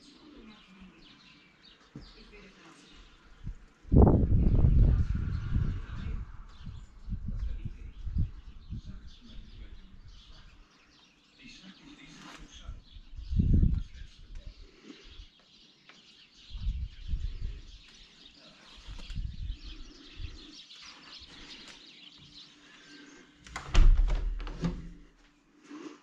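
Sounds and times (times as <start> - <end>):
faint small birds chirping: 0.0 - 23.6
low microphone rumbles: 3.3 - 10.6, 12.6 - 14.5, 16.5 - 17.8, 18.9 - 20.5.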